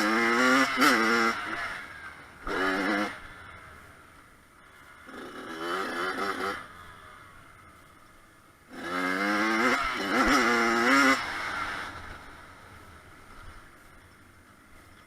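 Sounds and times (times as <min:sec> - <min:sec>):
motocross bike revving past: 0:00.0 - 0:03.8, 0:04.8 - 0:07.5, 0:08.7 - 0:13.7.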